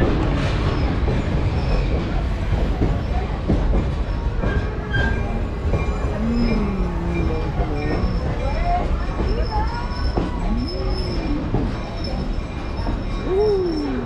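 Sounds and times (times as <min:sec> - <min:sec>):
train car rumbling on track: 0:00.0 - 0:14.0
wheel squeals: 0:04.1 - 0:14.0.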